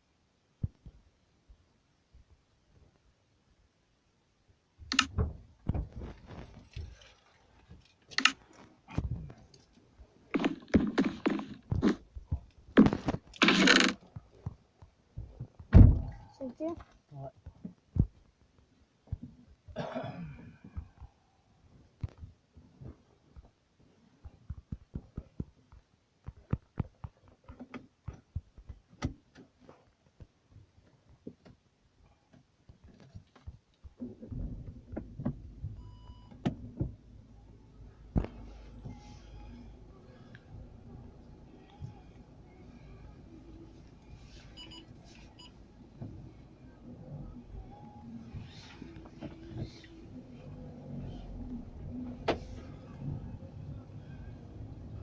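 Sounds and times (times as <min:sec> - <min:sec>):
handling knocks and scraping: 0:05.2 - 0:19.6.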